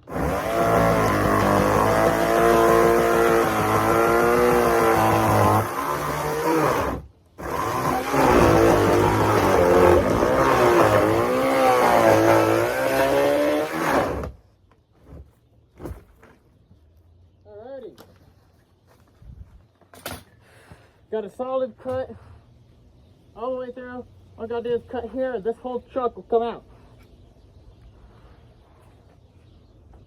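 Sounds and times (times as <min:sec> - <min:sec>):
chainsaw cutting: 0:00.0 - 0:14.4.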